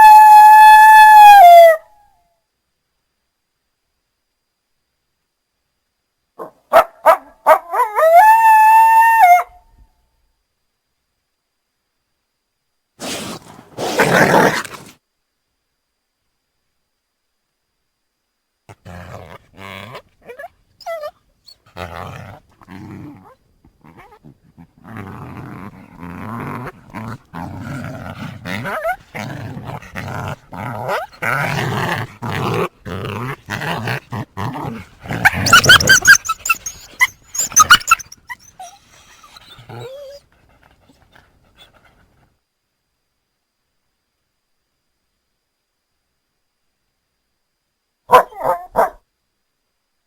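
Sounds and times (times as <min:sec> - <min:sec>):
coyote growling: 0:13.0 - 0:15.0, 0:18.7 - 0:42.2
coyote yipping: 0:35.2 - 0:39.9.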